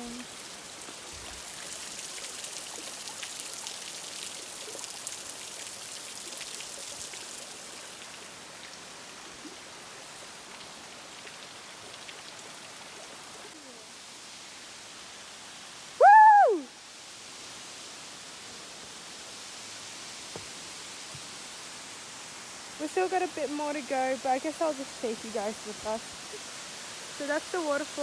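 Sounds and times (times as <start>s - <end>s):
water rushing over rocks: 17.8s - 28.0s.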